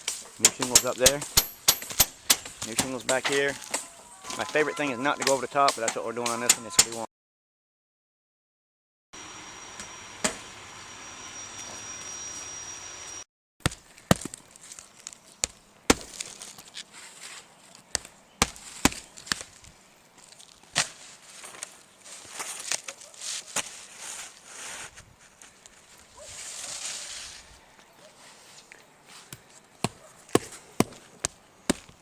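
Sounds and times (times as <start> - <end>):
nails driven into shingles: 0.0 - 3.3
thin high whine: 9.2 - 13.3.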